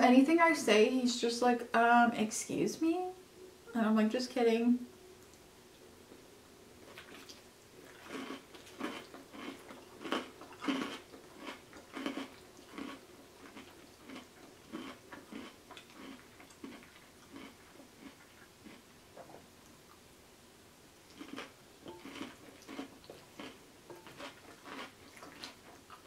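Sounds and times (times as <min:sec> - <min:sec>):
wet chewing sounds: 0:06.8 - 0:19.8, 0:21.1 - 0:26.0.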